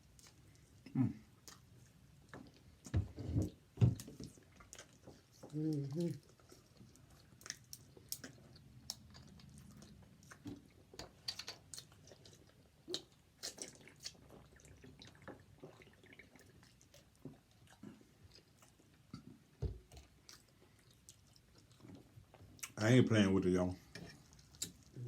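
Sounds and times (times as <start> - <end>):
person chewing food: 0.0 - 22.8, 23.8 - 25.0
wet mouth smacks and clicks: 11.2 - 11.9.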